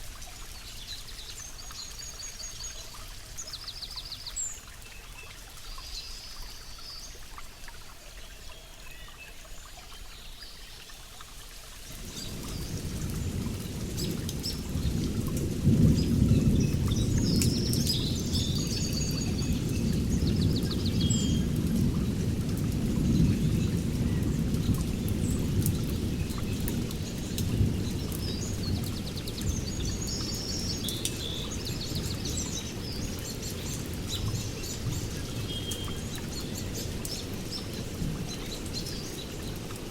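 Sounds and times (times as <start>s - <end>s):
rain falling: 0.0s - 39.9s
low thunder rumble: 12.0s - 30.3s.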